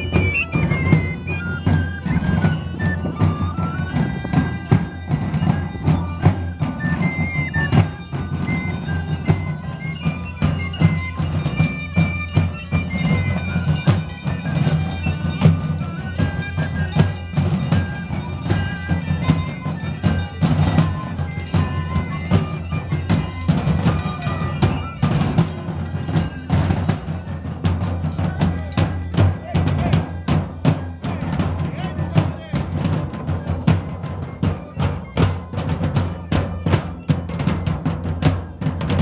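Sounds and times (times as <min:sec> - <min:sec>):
bagpipes playing a melody: 0:00.0 - 0:27.1
drums beating: 0:00.0 - 0:39.0.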